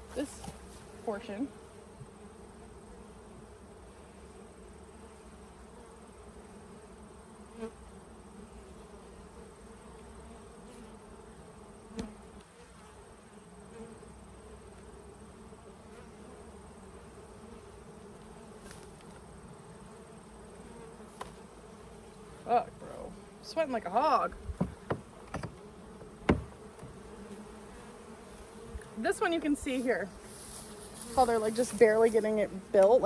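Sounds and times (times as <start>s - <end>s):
honeybees buzzing: 0.0s - 33.0s
light knocks: 24.5s - 27.0s.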